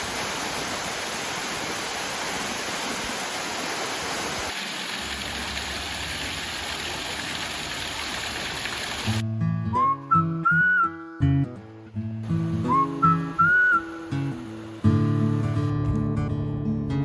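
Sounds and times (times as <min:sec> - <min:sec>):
rushing water: 0:00.0 - 0:09.2, 0:11.6 - 0:15.7.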